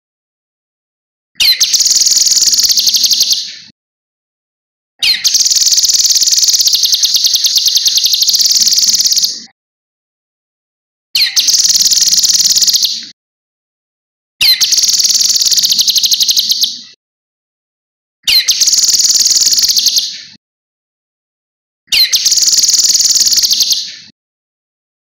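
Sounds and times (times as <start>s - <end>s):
bird singing high trills: 1.4s - 3.6s, 5.0s - 9.5s, 11.2s - 13.0s, 14.4s - 16.8s, 18.3s - 20.2s, 21.9s - 24.1s.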